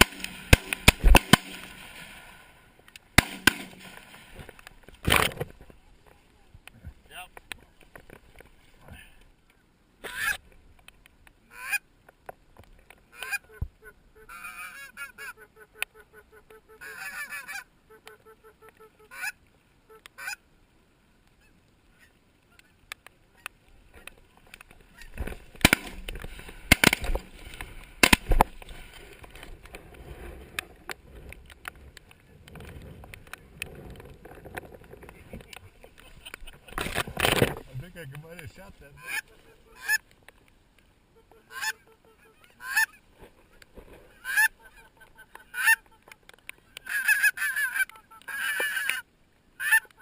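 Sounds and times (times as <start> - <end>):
shotgun shots: 0.0 - 2.1, 3.2 - 4.0, 25.6 - 26.1, 26.7 - 27.3, 28.0 - 28.4
geese honking: 11.5 - 11.8, 13.1 - 20.4, 24.8 - 27.4, 37.8 - 40.0, 41.1 - 50.0.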